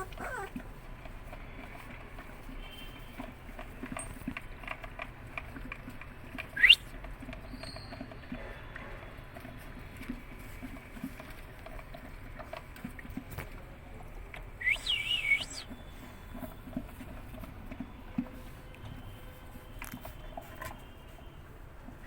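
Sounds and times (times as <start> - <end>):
puppy whining: 0.0 - 0.9.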